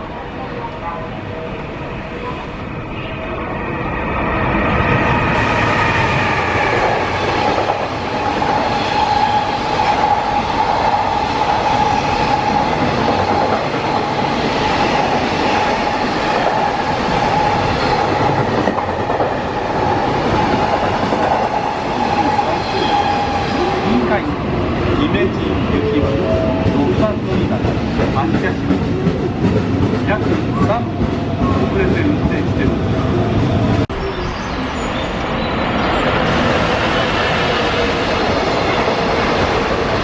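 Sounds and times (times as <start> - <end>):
train wheels clattering on rails: 6.2 - 23.4.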